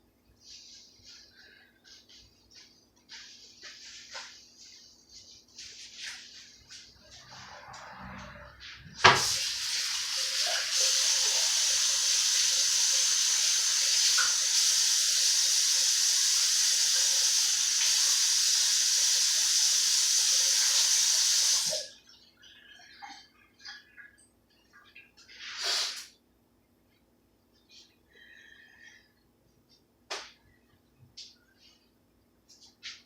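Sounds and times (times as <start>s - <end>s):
tap running into sink: 9.0s - 9.5s, 13.9s - 14.6s.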